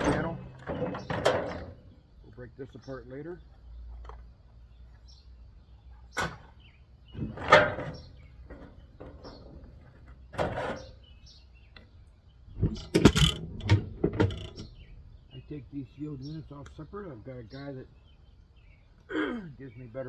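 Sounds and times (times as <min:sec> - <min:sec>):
knocks and scrapes of parts: 0:00.0 - 0:02.0, 0:06.1 - 0:11.2, 0:12.5 - 0:14.9
sharp metal clanks: 0:12.6 - 0:14.9.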